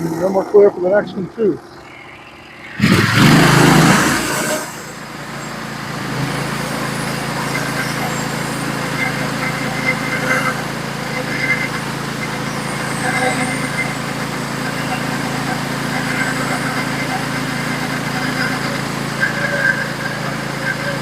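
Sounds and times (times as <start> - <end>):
sawmill running steadily: 0.0 - 21.0
bandsaw blade rushing up to speed: 2.5 - 9.3.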